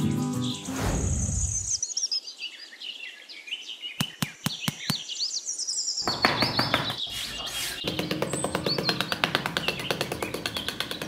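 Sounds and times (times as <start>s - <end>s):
background music: 0.0s - 1.0s
birds chirping: 0.2s - 11.0s.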